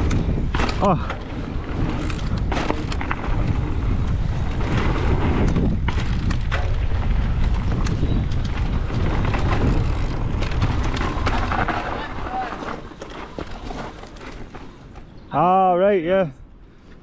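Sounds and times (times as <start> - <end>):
wind buffeting microphone: 0.0 - 12.8
bike knocks and rattles: 0.0 - 15.0.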